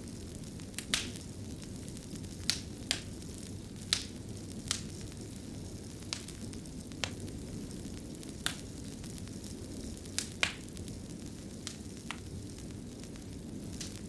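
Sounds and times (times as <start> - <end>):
fire crackles and pops: 0.0 - 14.0
fire low rumble: 0.0 - 14.0.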